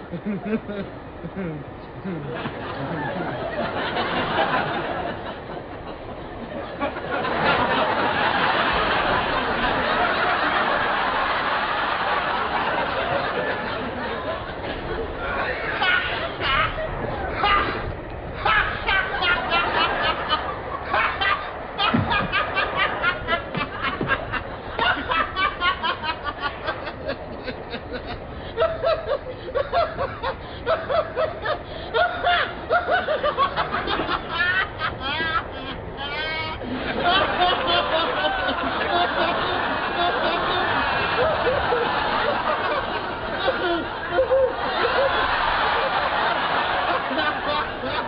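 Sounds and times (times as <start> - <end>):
person snickering: 0.0 - 3.3, 21.1 - 26.3
studio audience laughing: 0.0 - 48.0.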